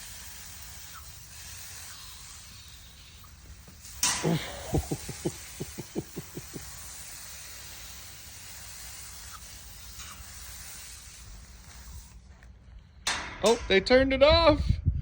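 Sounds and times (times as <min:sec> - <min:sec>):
water spraying from a tap: 0:00.0 - 0:04.1, 0:06.7 - 0:12.2.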